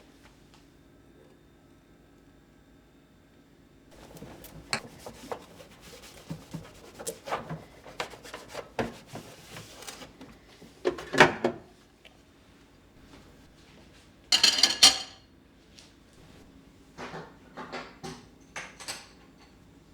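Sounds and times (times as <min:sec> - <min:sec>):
kitchen items clattering: 0:03.9 - 0:11.7, 0:14.3 - 0:15.2
kitchen items knocking and clicking: 0:04.0 - 0:11.7, 0:14.4 - 0:15.2.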